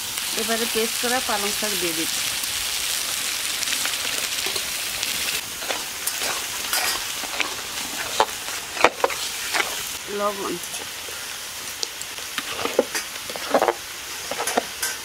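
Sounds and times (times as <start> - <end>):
metal spatula scraping a pan: 5.6 - 10.0, 12.3 - 15.0.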